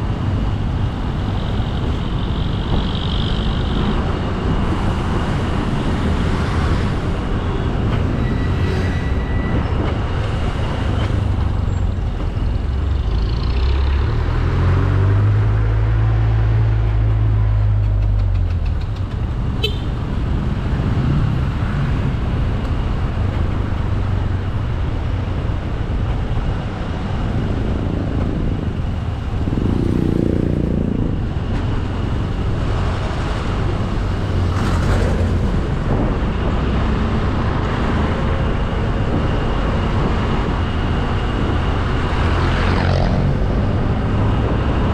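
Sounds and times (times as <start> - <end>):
wind and road noise: 0.0 - 44.9
motorcycle engine running: 27.9 - 32.0.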